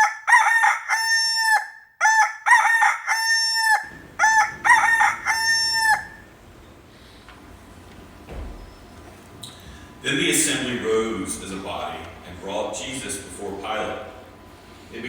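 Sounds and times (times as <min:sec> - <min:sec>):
rooster crowing: 0:00.0 - 0:06.5.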